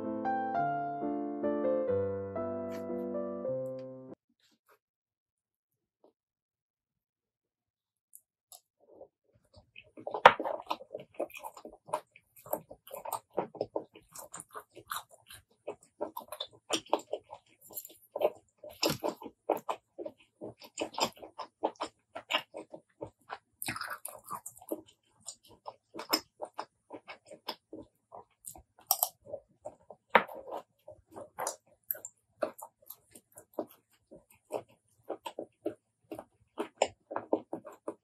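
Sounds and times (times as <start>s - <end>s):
wet chewing and mouth smacks: 8.5s - 38.0s.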